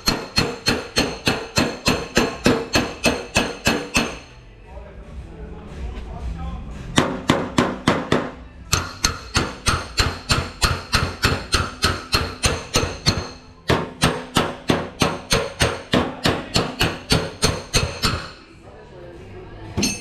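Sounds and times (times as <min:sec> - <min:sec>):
hammer on sheet steel: 0:00.0 - 0:04.4, 0:07.0 - 0:18.4.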